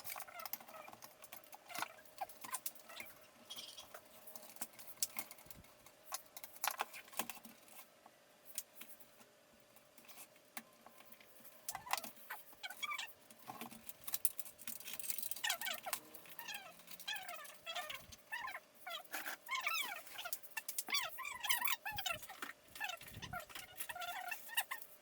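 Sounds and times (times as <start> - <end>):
animal squeaking: 1.6 - 4.0, 11.7 - 13.2, 15.4 - 24.9
hardware clicking and rattling: 10.9 - 18.5.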